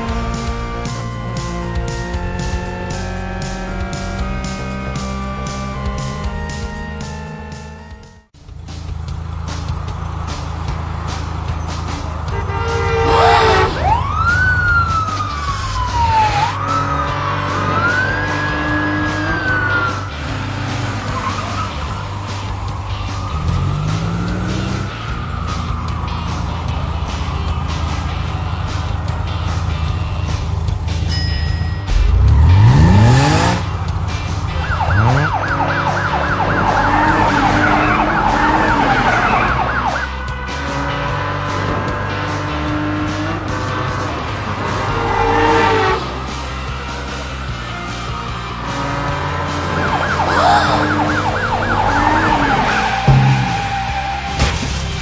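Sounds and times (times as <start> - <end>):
cartoon police siren wailing: 0.0 - 8.3, 13.0 - 26.4, 34.5 - 40.1, 49.6 - 54.4
background music with steady beat: 0.0 - 55.0.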